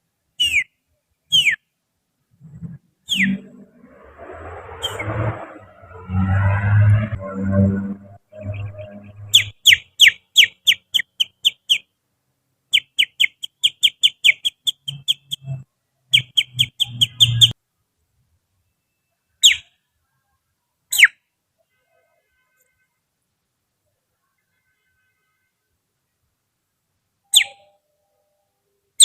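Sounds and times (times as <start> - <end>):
finger whistling birdsong imitation: 0.4 - 0.7, 1.3 - 1.6, 3.1 - 3.4, 27.3 - 27.7.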